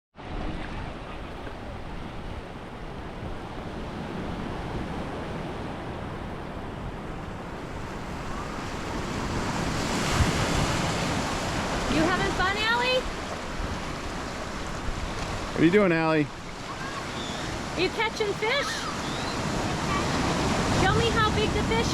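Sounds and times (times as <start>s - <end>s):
wind on microphone: 0.2s - 15.5s
ocean surf washing on shore: 0.2s - 21.9s.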